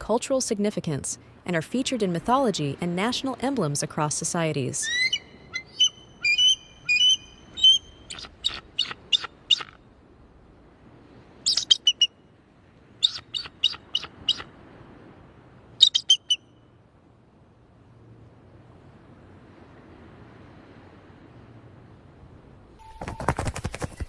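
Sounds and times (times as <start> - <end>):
eagle calling: 4.8 - 9.8, 11.5 - 12.1, 13.0 - 14.5, 15.8 - 16.5.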